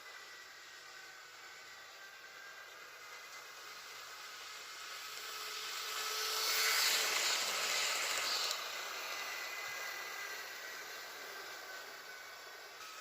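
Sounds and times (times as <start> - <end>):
model train motor whirring: 0.0 - 13.0
wheels rattling on rails: 3.0 - 12.7.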